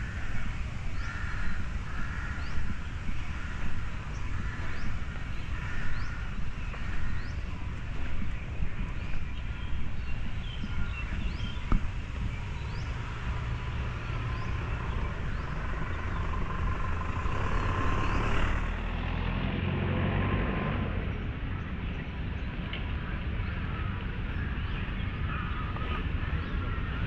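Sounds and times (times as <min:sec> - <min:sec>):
low rumble of city traffic: 0:00.0 - 0:27.0.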